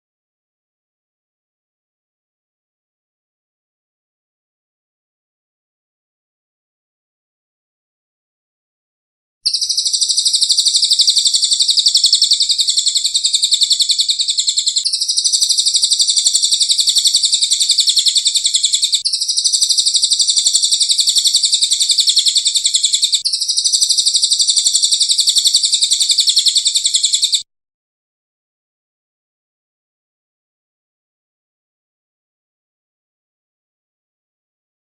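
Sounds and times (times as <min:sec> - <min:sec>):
bird's rapid high trill: 0:09.4 - 0:27.4.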